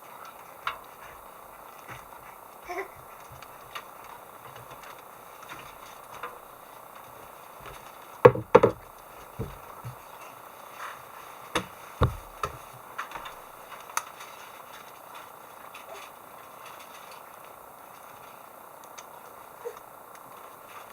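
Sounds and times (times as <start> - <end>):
knocks and thuds: 8.2 - 10.0, 11.6 - 12.7
light taps: 11.6 - 13.4.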